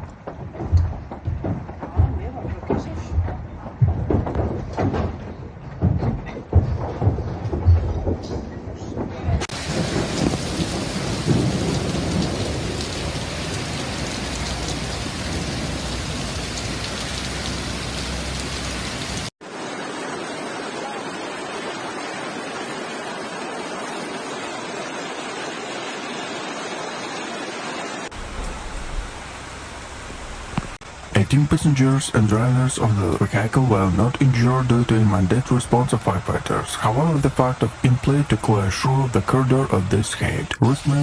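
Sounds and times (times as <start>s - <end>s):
heavy rain pouring: 9.4s - 41.0s.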